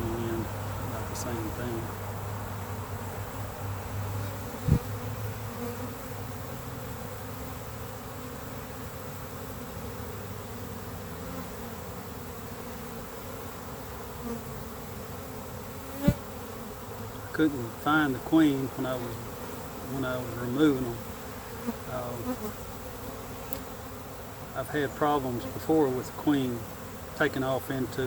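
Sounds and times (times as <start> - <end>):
bees buzzing: 0.0 - 28.0
sharp thump: 4.6 - 4.9.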